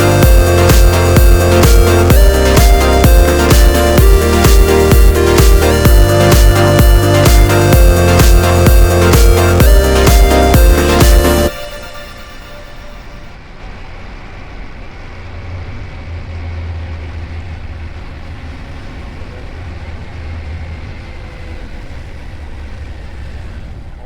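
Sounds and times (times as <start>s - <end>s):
road and wind noise: 13.5s - 24.0s.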